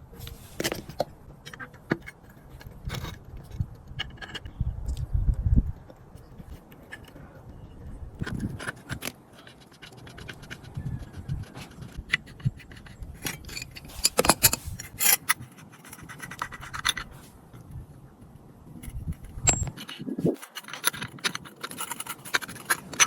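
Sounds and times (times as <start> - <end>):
scraping and clicking small parts: 0.2 - 5.0, 5.8 - 7.6, 8.2 - 17.7, 18.8 - 23.0
sharp clicks and knocks: 8.2 - 17.1, 18.8 - 23.0.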